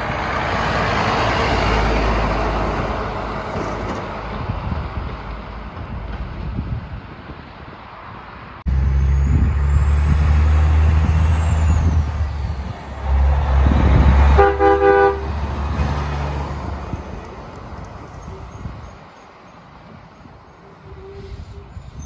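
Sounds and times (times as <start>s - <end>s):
truck engine rumbling: 0.0s - 22.0s
truck horn: 13.0s - 16.4s.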